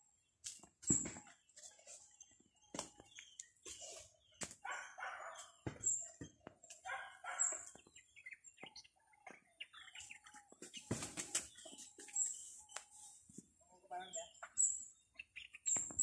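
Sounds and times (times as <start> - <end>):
birds chirping: 0.0 - 16.0
coarse bird calls: 1.0 - 16.0.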